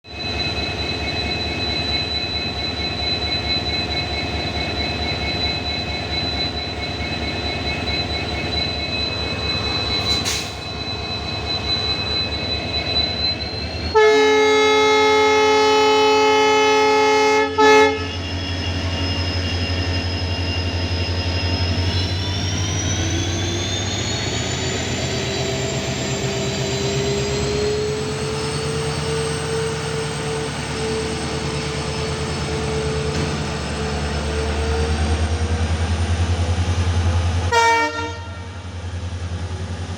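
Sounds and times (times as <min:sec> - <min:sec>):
locomotive horn: 0:13.9 - 0:18.3, 0:37.5 - 0:38.7.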